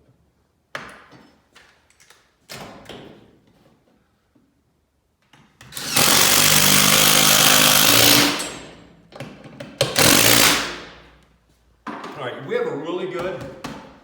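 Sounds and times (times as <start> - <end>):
power driver driving bolts into wood: 5.6 - 11.0.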